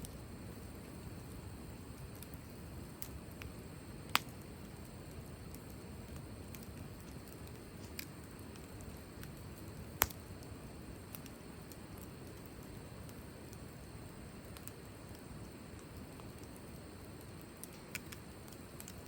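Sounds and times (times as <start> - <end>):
fire popping sharply: 0.0 - 19.0
wood fire crackling: 0.0 - 19.0.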